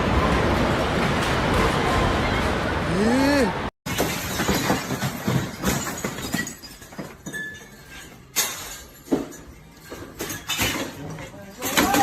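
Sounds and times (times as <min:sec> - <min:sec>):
objects clinking and rattling: 0:03.9 - 0:12.0.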